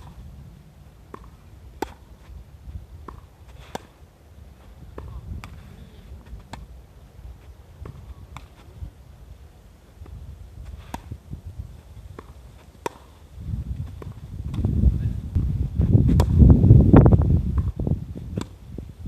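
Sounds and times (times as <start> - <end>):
racket hitting tennis ball: 0.0 - 0.2, 0.9 - 2.4, 3.0 - 6.7, 7.8 - 8.7, 10.0 - 11.2, 12.1 - 13.2, 13.8 - 14.7, 15.4 - 16.5
wind buffeting microphone: 4.7 - 9.3, 10.0 - 12.6, 13.3 - 19.0.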